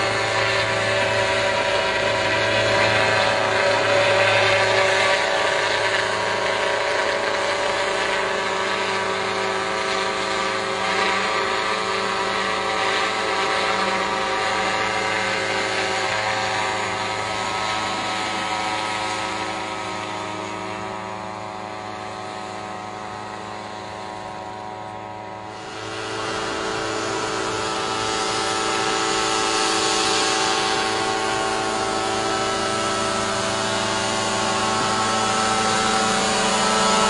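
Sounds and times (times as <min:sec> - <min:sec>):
drone propellers humming: 0:00.0 - 0:37.0.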